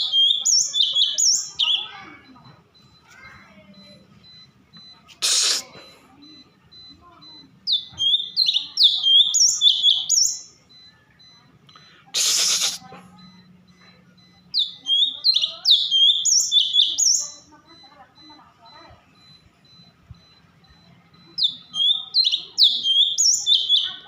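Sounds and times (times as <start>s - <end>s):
songbird whistling: 0.0s - 2.0s, 7.7s - 11.4s, 14.5s - 17.4s, 19.2s - 24.0s.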